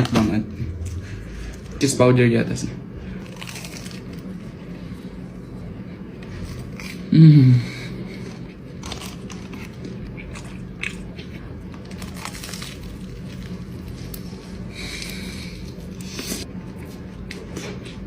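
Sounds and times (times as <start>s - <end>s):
crunchy chewing: 3.2s - 7.1s, 7.7s - 18.0s
person humming: 7.0s - 7.9s.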